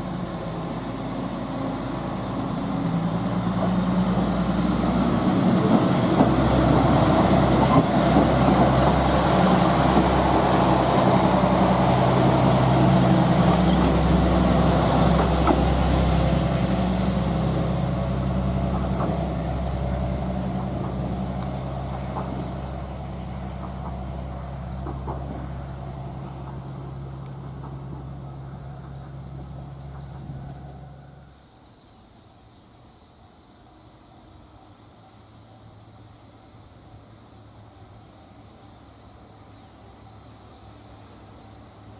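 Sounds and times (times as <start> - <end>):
train engine hum and rumble: 0.0 - 41.9.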